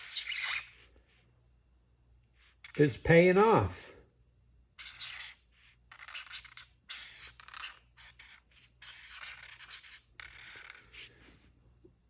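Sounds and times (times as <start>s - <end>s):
drawing tool scratching paper: 0.0s - 0.9s, 4.8s - 11.2s.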